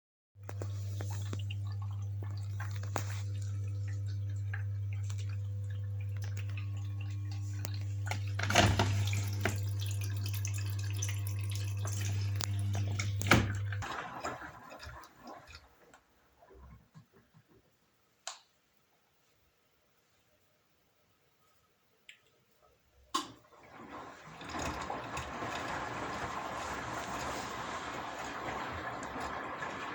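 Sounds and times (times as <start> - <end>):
washing machine humming: 0.4 - 16.7, 23.3 - 29.9
water splashing and gurgling: 0.6 - 15.8, 23.7 - 29.9.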